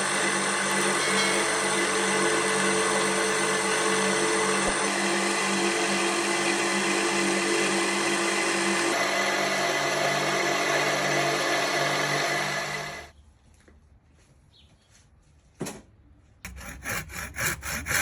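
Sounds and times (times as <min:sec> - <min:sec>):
machine humming: 0:00.0 - 0:13.1.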